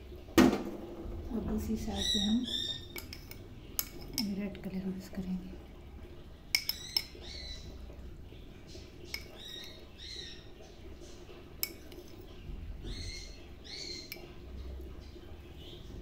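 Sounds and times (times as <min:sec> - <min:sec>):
bird chirping: 0:01.8 - 0:03.1, 0:06.6 - 0:11.2, 0:12.4 - 0:14.4.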